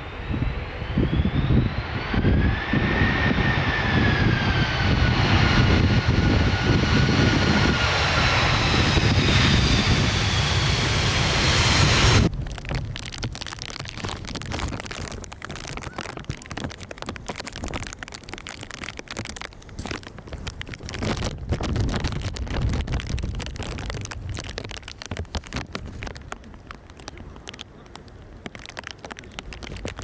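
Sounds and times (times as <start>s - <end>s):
low rumble: 0.0s - 13.2s
wind buffeting microphone: 0.0s - 27.6s
crackling: 2.0s - 30.0s.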